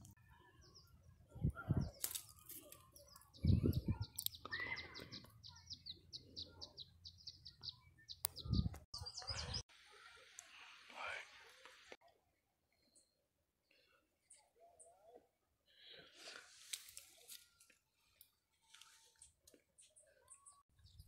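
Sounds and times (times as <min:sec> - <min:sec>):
shrub branches knocking and rustling: 0:02.0 - 0:02.8
small bird chirping: 0:02.8 - 0:09.6.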